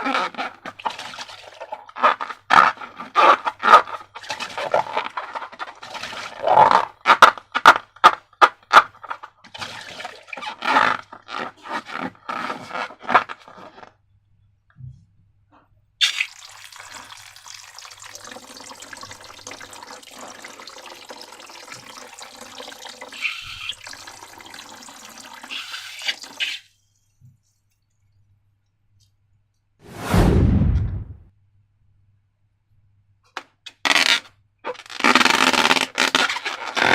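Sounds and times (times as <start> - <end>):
liquid pouring: 16.0 - 26.8.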